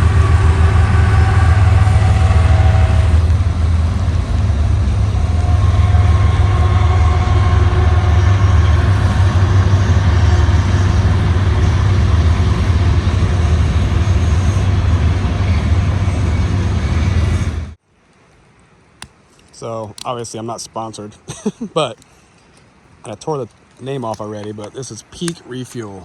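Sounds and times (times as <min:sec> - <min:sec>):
vehicle engine and road noise: 0:00.0 - 0:17.8.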